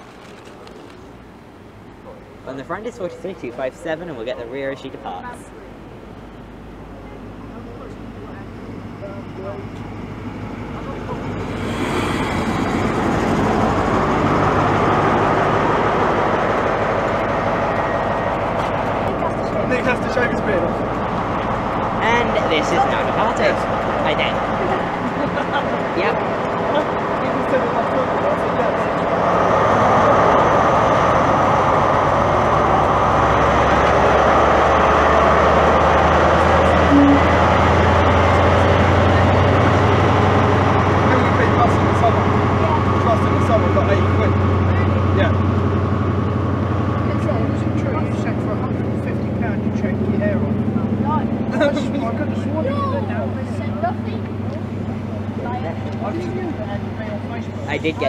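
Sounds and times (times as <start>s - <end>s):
diesel locomotive engine running: 0.0s - 58.0s
short tone: 36.8s - 37.7s.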